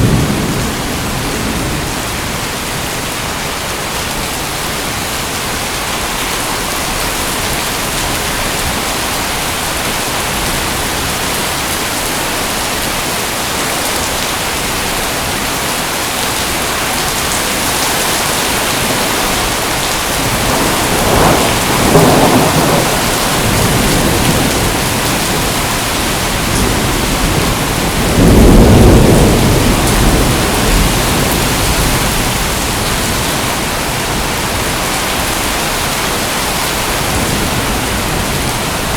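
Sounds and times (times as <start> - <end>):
thunder rolling: 0.0 - 2.8, 18.3 - 34.7
heavy rain hissing: 0.0 - 38.9.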